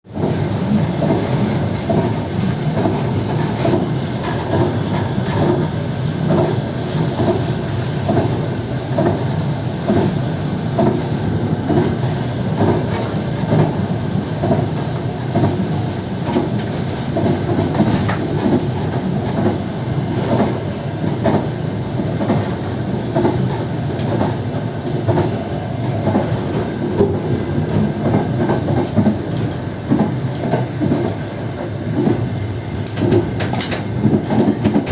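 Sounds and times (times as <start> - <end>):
train wheels rumbling on rail: 0.0 - 34.9
clickety-clack over rail joints: 0.1 - 25.4, 28.2 - 34.9.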